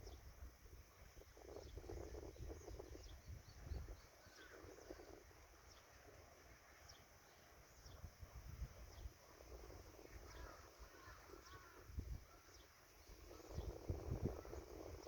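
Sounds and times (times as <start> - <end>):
wind rumble on microphone: 0.0 - 7.0, 7.7 - 15.0
small birds chirping: 1.4 - 8.2, 10.2 - 15.0.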